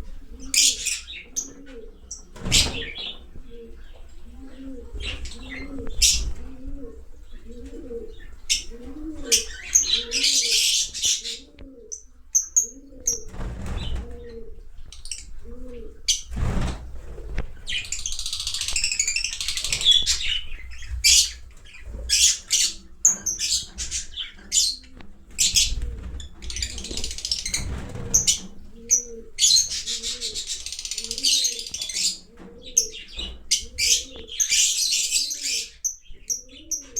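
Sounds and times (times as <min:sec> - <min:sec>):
lovebirds chirping: 0:00.0 - 0:36.9.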